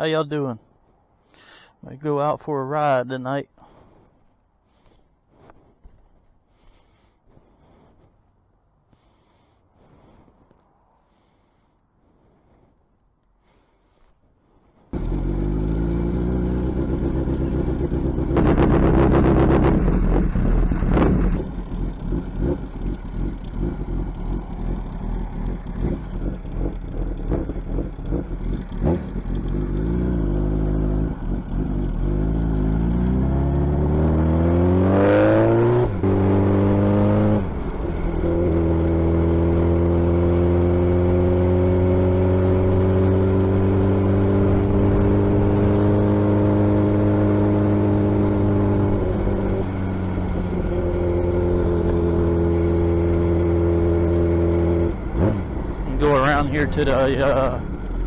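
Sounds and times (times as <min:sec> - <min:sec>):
motorcycle engine revving: 0:15.0 - 0:58.0.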